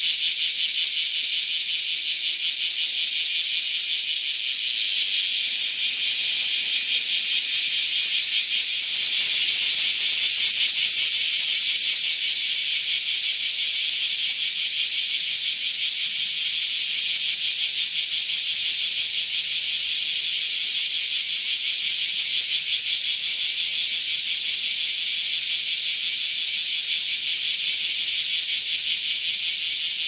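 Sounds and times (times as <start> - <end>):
cicada buzzing: 0.0 - 30.0.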